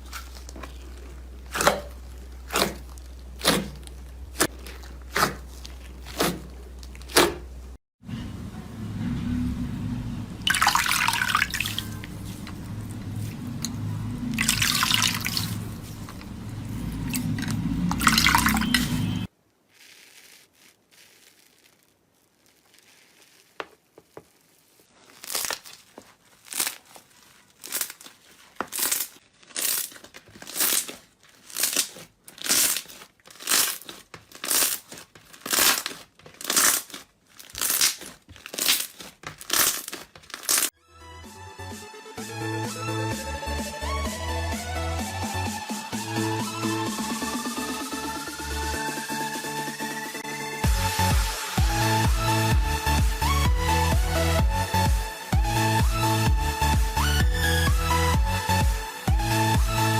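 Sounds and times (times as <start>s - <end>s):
slime squelching: 0.0s - 7.8s, 10.4s - 40.8s
slime squishes: 0.0s - 7.8s, 10.4s - 40.8s.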